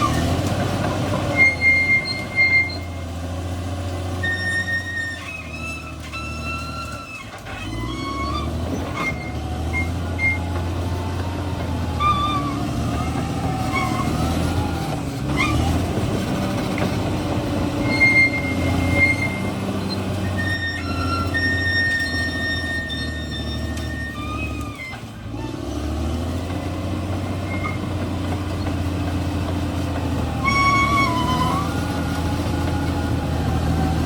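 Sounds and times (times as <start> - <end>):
bulldozer diesel engine running: 0.0 - 34.0
high squeals: 1.2 - 3.2, 4.1 - 15.8, 17.8 - 25.7, 27.3 - 28.0, 30.3 - 34.0.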